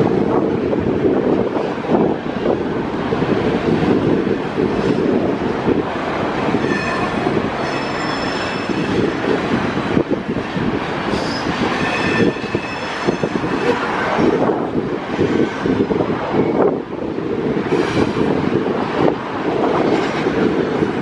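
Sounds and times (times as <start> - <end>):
train rumbling past: 0.0 - 21.0
high wheel squeal: 6.5 - 9.1, 11.1 - 14.2.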